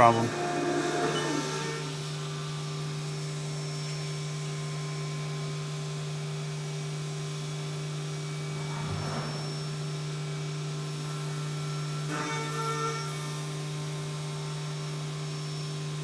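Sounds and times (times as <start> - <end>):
milling machine spindle humming: 0.0 - 4.0.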